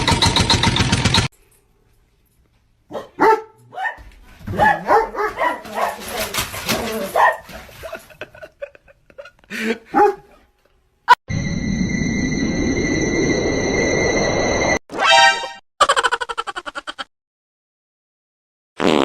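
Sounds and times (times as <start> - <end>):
dog barking and yipping: 2.9 - 7.8, 9.9 - 10.4.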